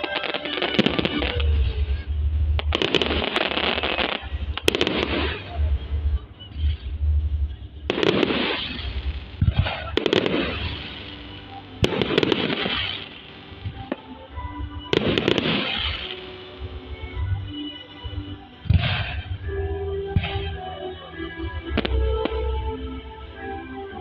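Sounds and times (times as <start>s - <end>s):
firework crackling: 0.0s - 19.5s
firework shells bursting: 7.9s - 14.0s.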